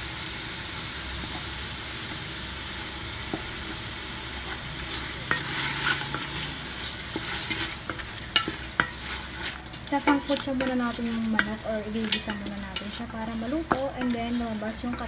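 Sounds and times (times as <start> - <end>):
chicken sizzling in a pot: 0.0 - 15.0
wooden spatula scraping a pot: 4.4 - 15.0.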